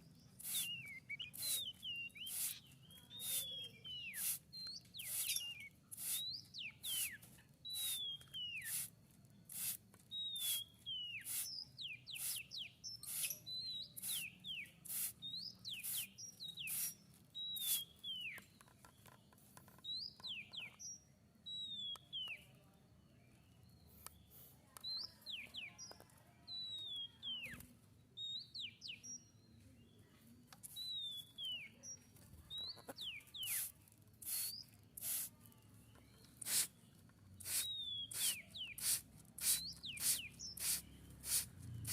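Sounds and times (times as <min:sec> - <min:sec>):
songbird ticks and whistles: 0:00.0 - 0:22.5, 0:23.8 - 0:29.3, 0:30.5 - 0:41.9.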